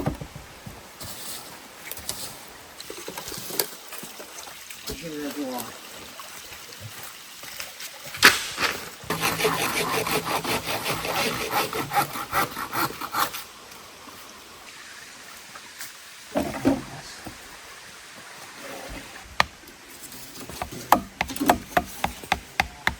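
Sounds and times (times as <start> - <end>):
hand saw cutting bamboo: 9.1 - 13.5, 20.2 - 22.9.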